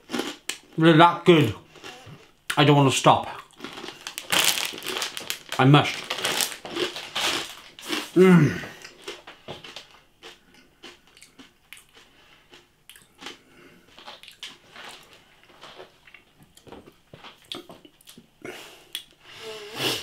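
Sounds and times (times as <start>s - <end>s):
crunching and chewing: 0.0s - 0.7s, 3.4s - 18.3s.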